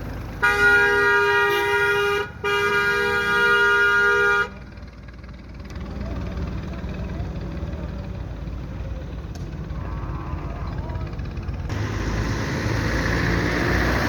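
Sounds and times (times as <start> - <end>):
tractor engine rumbling: 0.0 - 14.0
two-tone vehicle horn blaring: 0.3 - 4.8.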